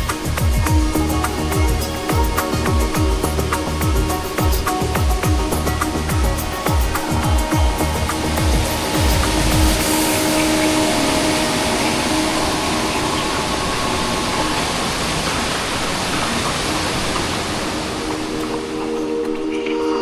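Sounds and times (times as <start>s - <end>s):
background music: 0.0s - 15.7s
waterfall rushing: 0.0s - 20.0s.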